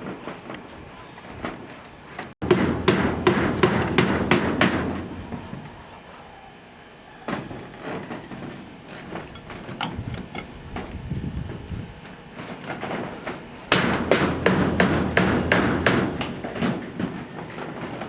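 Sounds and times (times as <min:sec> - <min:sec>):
sharp hammer strikes: 0:02.4 - 0:05.0, 0:13.7 - 0:16.4.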